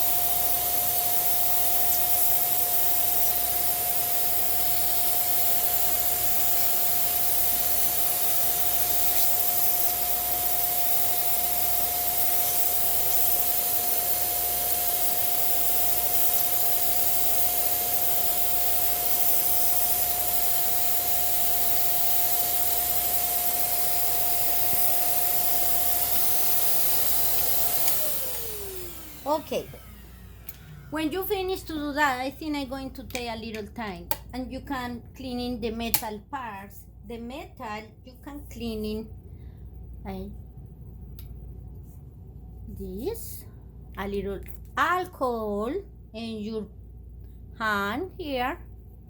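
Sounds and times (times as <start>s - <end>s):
motor whine: 0.0s - 31.4s.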